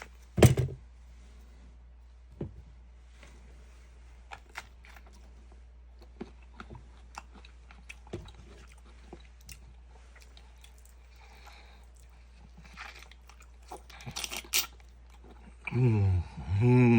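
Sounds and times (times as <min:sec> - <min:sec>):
steady low hum: 0:00.0 - 0:16.9
mouth chewing fruit: 0:04.2 - 0:16.6.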